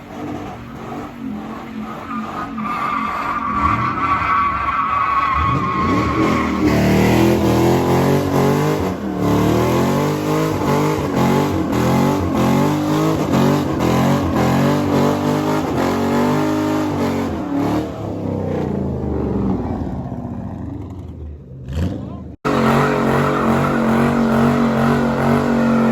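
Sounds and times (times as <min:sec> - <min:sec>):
car engine revving: 0:05.3 - 0:20.8, 0:21.6 - 0:25.9.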